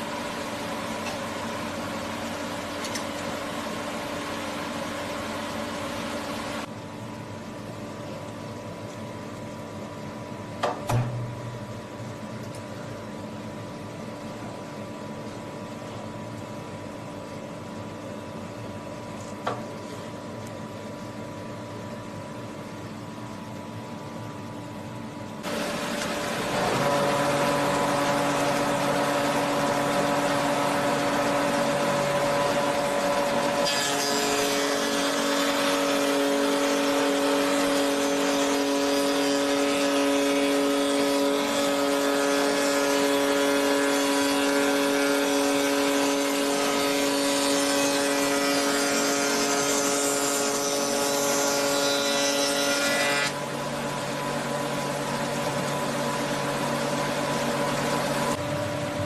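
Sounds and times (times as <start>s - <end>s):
milling machine humming: 0.0s - 43.8s, 52.8s - 59.0s
cutter cutting wood: 25.5s - 53.4s.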